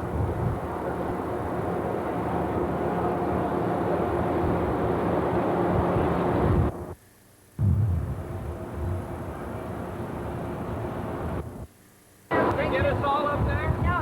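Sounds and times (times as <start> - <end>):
faint hum: 0.0 - 14.0
low rumble: 7.6 - 9.4.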